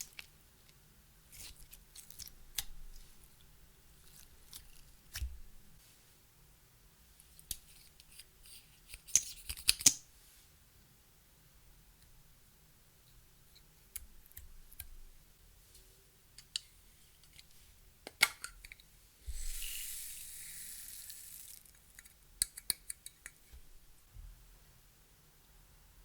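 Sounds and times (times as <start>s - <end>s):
steady high hiss: 19.1s - 21.9s.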